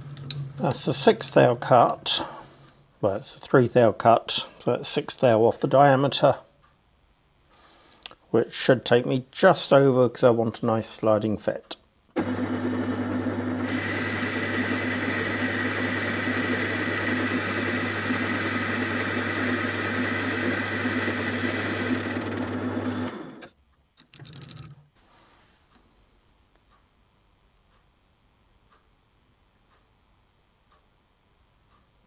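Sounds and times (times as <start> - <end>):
hissing cutting noise: 12.2 - 23.5
lathe motor hum: 12.2 - 23.5.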